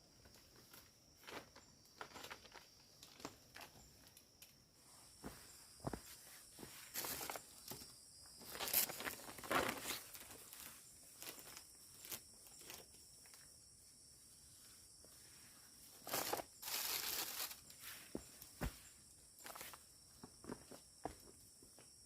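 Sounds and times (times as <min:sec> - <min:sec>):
rustling and crackling: 0:05.2 - 0:13.5, 0:15.8 - 0:19.8.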